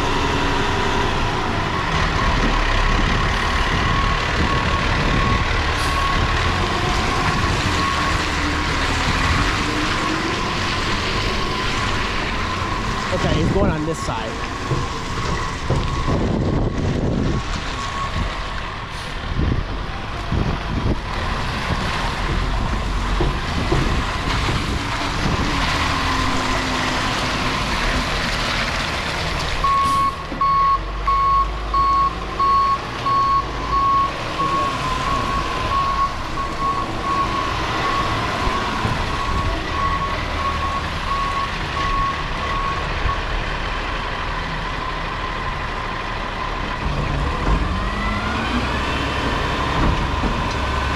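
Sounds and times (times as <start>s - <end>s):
recycling truck engine and hydraulics: 0.0s - 50.9s
reversing alarm beeping: 3.5s - 18.3s, 29.6s - 43.3s.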